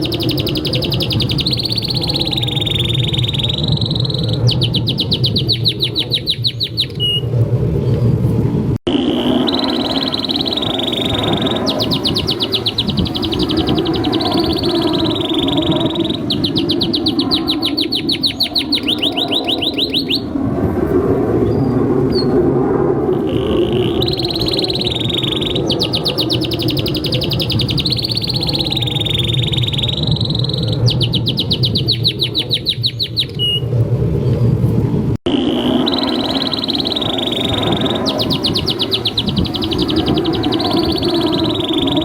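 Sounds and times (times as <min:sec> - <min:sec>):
canary trilling: 0:00.0 - 0:07.3, 0:08.9 - 0:20.3, 0:23.2 - 0:33.6, 0:35.3 - 0:42.0.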